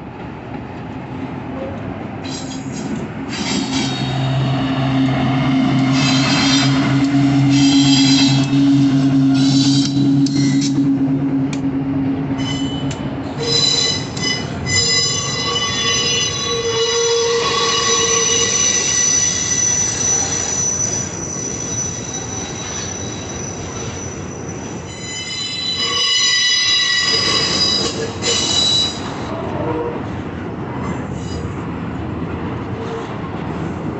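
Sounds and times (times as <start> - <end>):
train wheels squealing: 5.7 - 10.8, 12.4 - 29.3.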